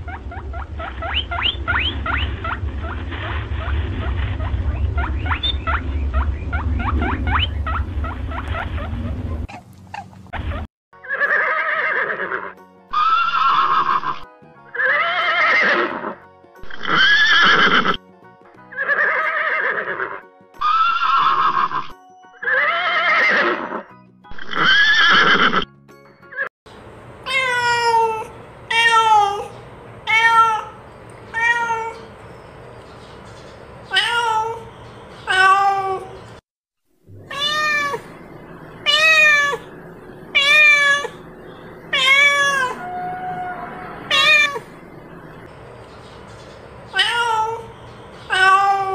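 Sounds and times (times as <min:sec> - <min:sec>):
animal calling: 0:00.0 - 0:18.0, 0:18.7 - 0:25.6, 0:37.2 - 0:45.6.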